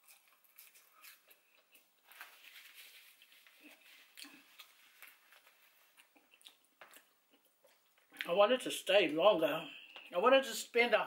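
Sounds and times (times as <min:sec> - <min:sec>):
faint chewing mouth clicks: 0:04.1 - 0:08.3.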